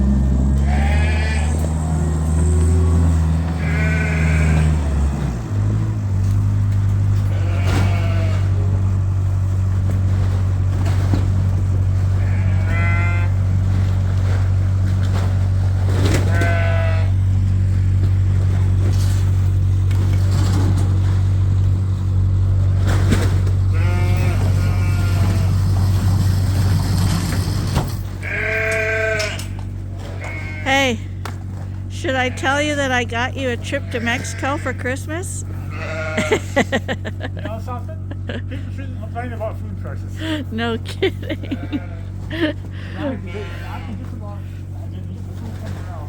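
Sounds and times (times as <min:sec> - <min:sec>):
tractor engine running: 0:00.0 - 0:46.0
sheep bleating: 0:00.4 - 0:02.2, 0:03.5 - 0:05.1, 0:07.0 - 0:09.0, 0:12.0 - 0:13.9, 0:16.2 - 0:17.5, 0:23.7 - 0:25.8, 0:28.2 - 0:37.0, 0:40.2 - 0:44.7.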